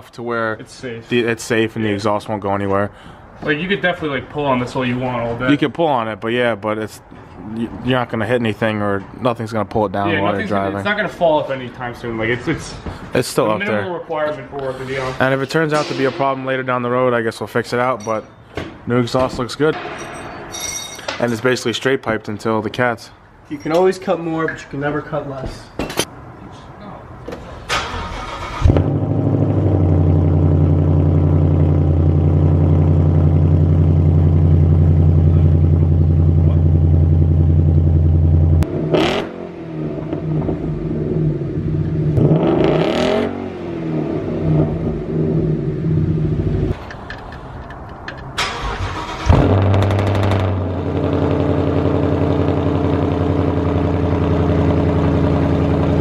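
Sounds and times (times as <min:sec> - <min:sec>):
loud car exhaust idling and revving: 0:28.6 - 0:46.8, 0:49.3 - 0:56.0.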